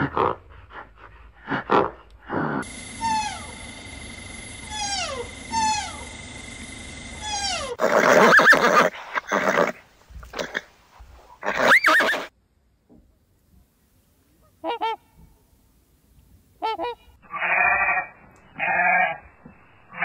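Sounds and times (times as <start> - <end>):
horse whinnying: 7.2 - 10.7, 11.4 - 12.3.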